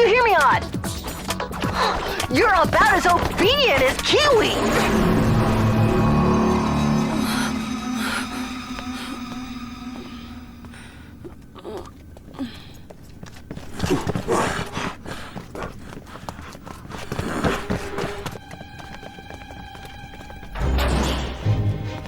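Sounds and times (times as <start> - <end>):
cartoon running footfalls: 0.0 - 4.8, 11.3 - 20.8.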